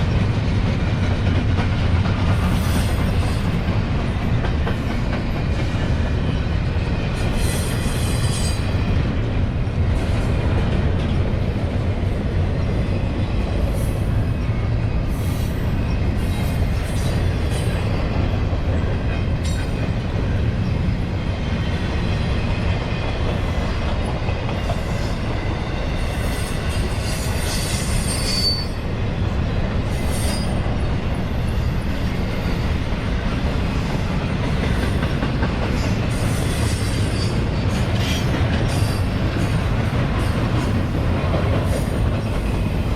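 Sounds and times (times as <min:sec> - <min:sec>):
freight train rumbling on rails: 0:00.0 - 0:42.9
high-pitched wheel squeal: 0:27.1 - 0:28.8.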